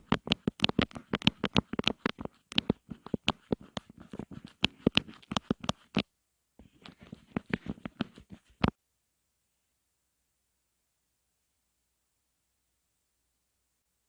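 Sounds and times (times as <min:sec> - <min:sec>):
quick irregular tapping: 0:00.0 - 0:06.0, 0:06.6 - 0:08.8.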